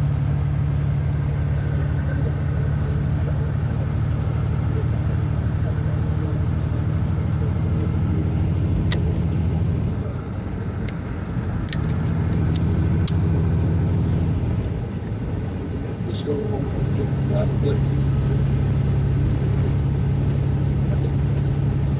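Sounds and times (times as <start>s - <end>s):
diesel truck engine droning: 0.0s - 21.9s
high engine whine: 0.0s - 21.9s
light clicks in cab: 8.8s - 9.4s.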